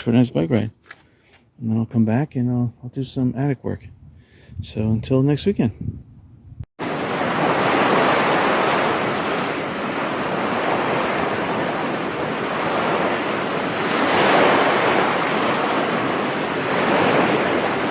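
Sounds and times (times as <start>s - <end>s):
ocean surf breaking: 6.8s - 17.9s.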